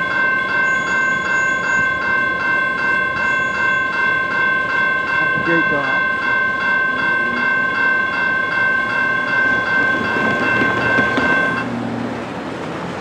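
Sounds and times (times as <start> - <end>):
freight train rumbling past: 0.0 - 13.0
railroad crossing bell ringing: 0.0 - 13.0.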